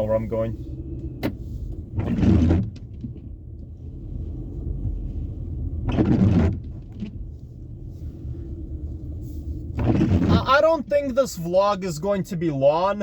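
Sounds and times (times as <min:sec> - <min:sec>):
road and engine rumble in car: 0:00.0 - 0:13.0
windshield wiper sweep: 0:01.1 - 0:11.2.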